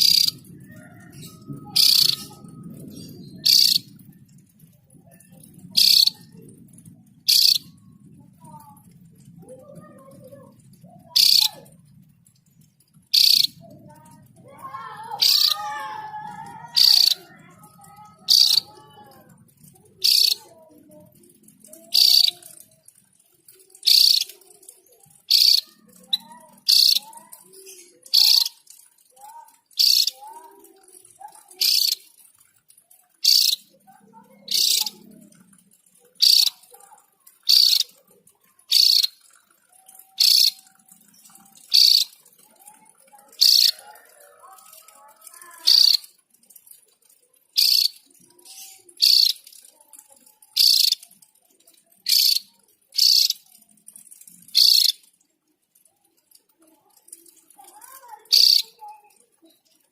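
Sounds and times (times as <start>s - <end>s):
bird giving sharp high calls: 0.0s - 0.4s, 1.7s - 2.5s, 3.4s - 3.9s, 5.8s - 6.2s, 7.3s - 7.8s, 11.1s - 11.7s, 13.1s - 13.6s, 15.1s - 16.0s, 16.7s - 17.2s, 18.2s - 18.8s, 33.2s - 33.6s, 36.2s - 36.6s, 37.4s - 37.9s, 38.7s - 39.2s, 41.6s - 42.2s
faint bird chirps: 0.0s - 4.3s, 5.1s - 8.8s, 9.4s - 11.8s, 13.1s - 18.8s, 19.7s - 21.0s, 21.7s - 22.6s, 23.6s - 28.7s, 36.1s - 42.3s, 47.6s - 51.2s, 52.0s - 53.6s, 54.4s - 55.0s, 56.9s - 58.8s.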